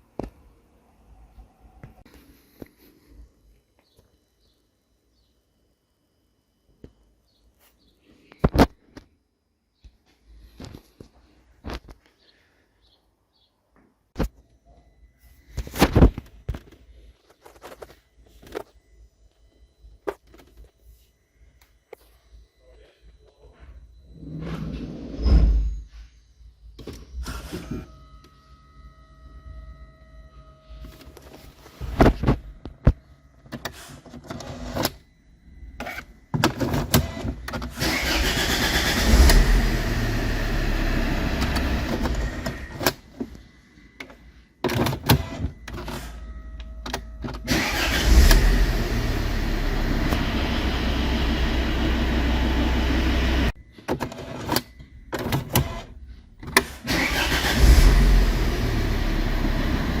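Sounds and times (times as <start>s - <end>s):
car engine starting and idling: 36.5s - 43.2s, 46.9s - 53.6s, 56.5s - 60.0s.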